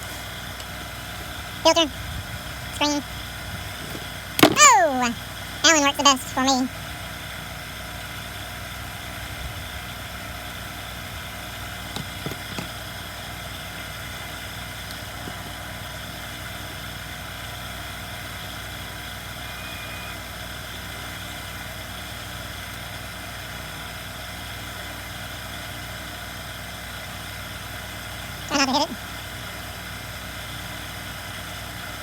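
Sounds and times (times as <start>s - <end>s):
mechanical hum: 0.0s - 24.2s.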